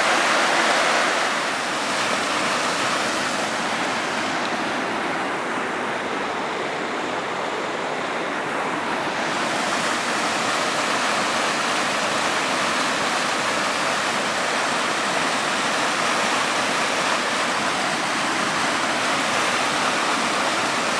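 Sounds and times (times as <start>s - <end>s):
waterfall water rushing: 0.0s - 20.9s.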